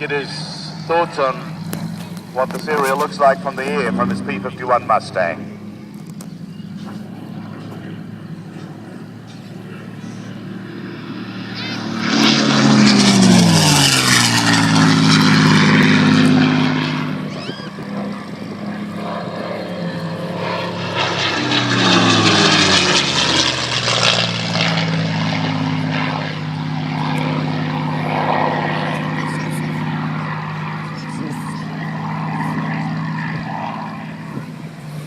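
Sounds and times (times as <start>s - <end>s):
propeller aircraft flying low past: 0.0s - 35.0s.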